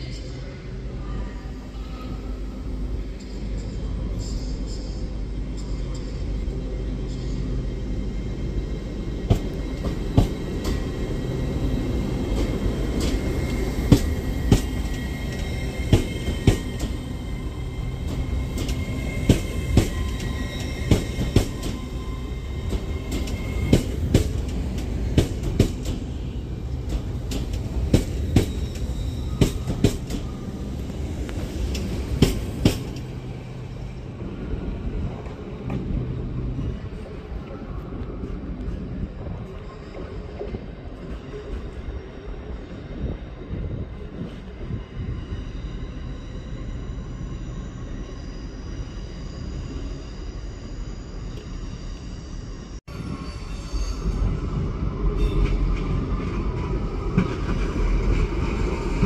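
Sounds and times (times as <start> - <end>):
train running rumble: 0.0 - 41.9.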